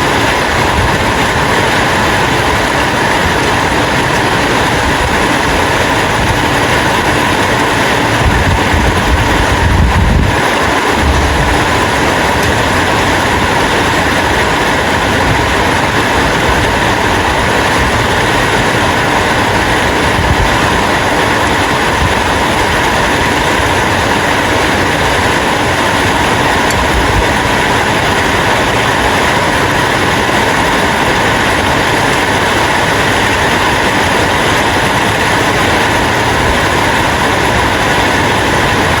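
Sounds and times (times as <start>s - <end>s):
low rumble: 0.0s - 25.0s
steady rain hiss: 0.0s - 39.0s.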